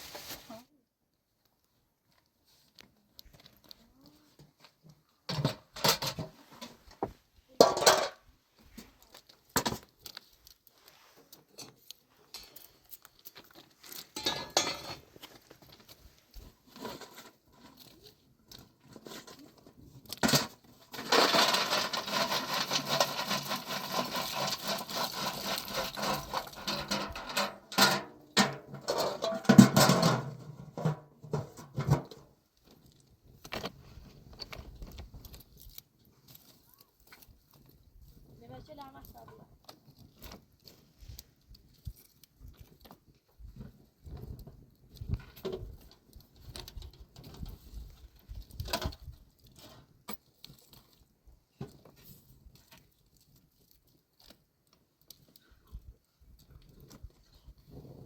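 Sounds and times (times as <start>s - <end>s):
rushing rustling noise: 0.0s - 0.5s
dishes and utensils clattering: 14.2s - 15.0s.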